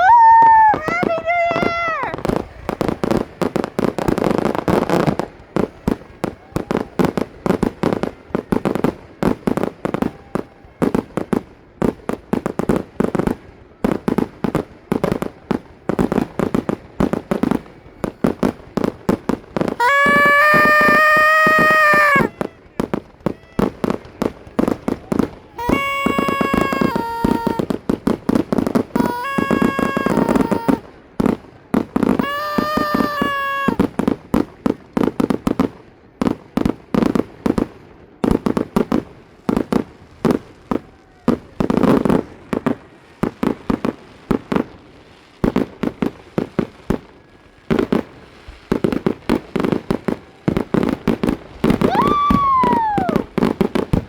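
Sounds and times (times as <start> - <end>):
fireworks popping and crackling: 0.0 - 54.0
horn blasts: 19.8 - 23.9, 25.6 - 27.7, 29.0 - 30.8, 32.2 - 33.8.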